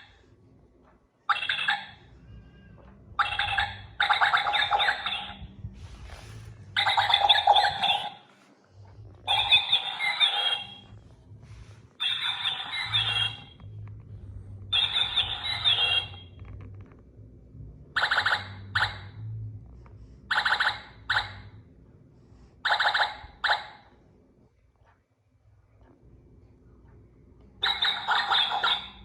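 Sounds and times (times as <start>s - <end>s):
recorded bird song from speaker: 1.3s - 2.2s, 3.2s - 5.6s, 6.8s - 8.2s, 9.3s - 10.9s, 12.0s - 13.6s, 14.7s - 16.3s, 27.6s - 29.0s.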